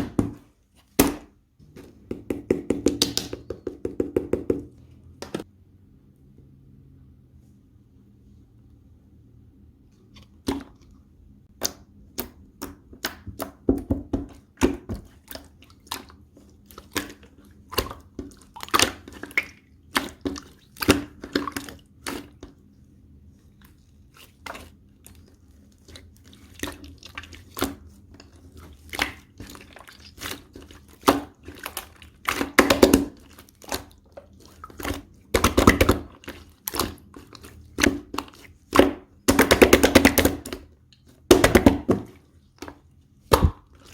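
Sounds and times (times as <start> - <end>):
air bubble pops: 43.3 - 43.7.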